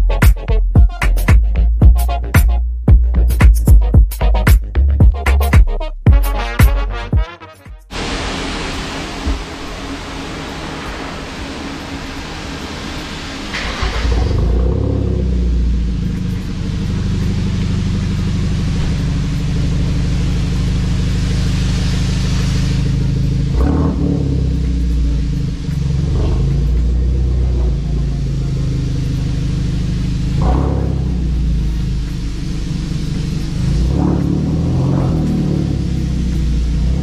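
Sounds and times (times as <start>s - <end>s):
car engine starting and droning: 7.9s - 37.0s
engine revving: 7.9s - 37.0s.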